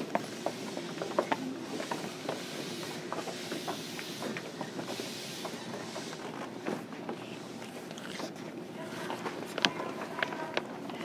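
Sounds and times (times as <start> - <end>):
train cabin rumble and hiss: 0.0 - 11.0.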